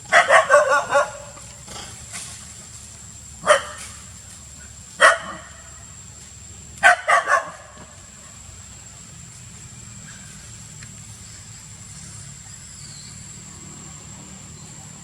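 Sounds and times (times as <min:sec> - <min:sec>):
sharp animal barks: 0:00.1 - 0:01.4, 0:03.4 - 0:03.9, 0:05.0 - 0:05.6, 0:06.8 - 0:07.9.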